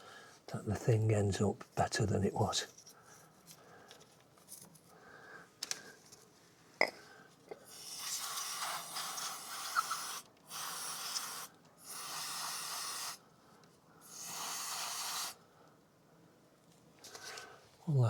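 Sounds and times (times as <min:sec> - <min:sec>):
aerosol spray can hissing: 0:07.7 - 0:13.2, 0:14.1 - 0:15.4.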